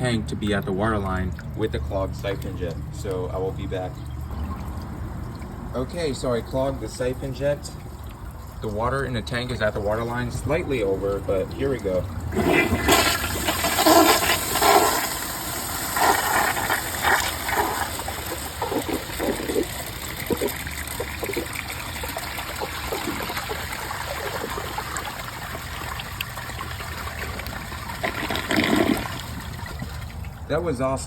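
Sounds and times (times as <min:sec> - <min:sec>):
water gurgling and trickling: 0:00.0 - 0:31.0
toilet flushing: 0:08.7 - 0:30.2.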